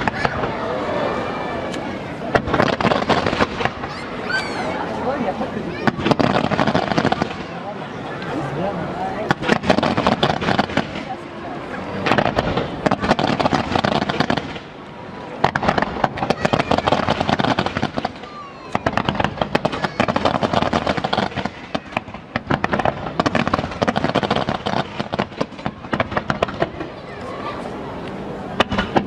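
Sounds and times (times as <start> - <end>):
fireworks bangs and crackling: 0.0 - 0.9, 1.6 - 29.0.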